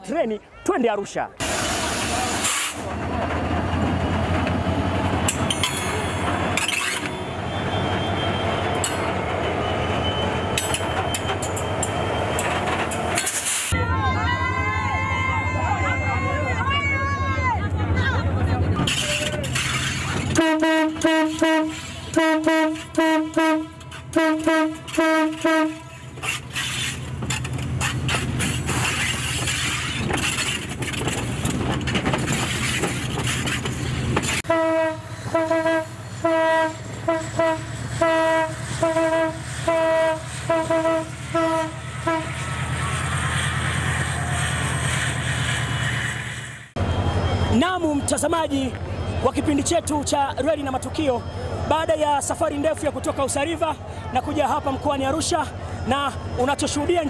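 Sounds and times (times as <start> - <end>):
train rumbling and rattling: 1.4 - 50.9
train horn blasts: 20.4 - 26.2, 34.4 - 42.5.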